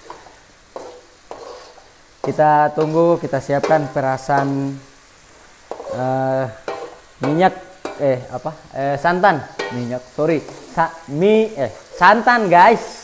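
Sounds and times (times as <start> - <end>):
metal ladle stirring in wok: 0.0 - 3.0, 5.7 - 6.0, 6.6 - 8.0, 9.5 - 10.8
paste sizzling in oil: 0.0 - 13.0.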